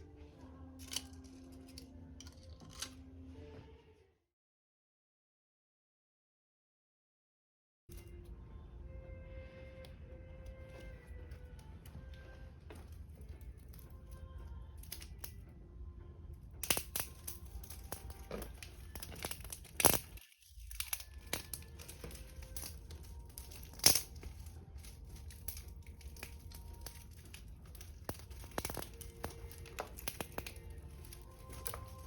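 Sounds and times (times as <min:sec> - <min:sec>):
wood fire crackling and popping: 0:12.7 - 0:15.4, 0:16.6 - 0:32.0.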